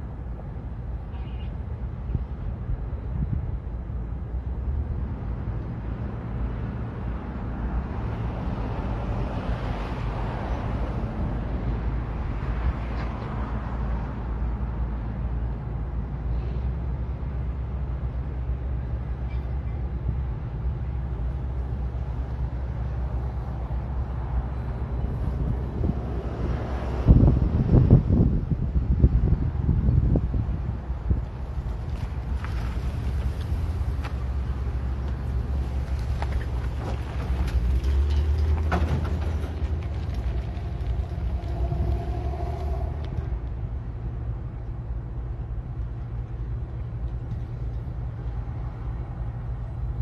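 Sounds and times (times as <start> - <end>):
heavy machinery engines droning: 0.0 - 50.0
rough noisy rush: 36.4 - 44.6.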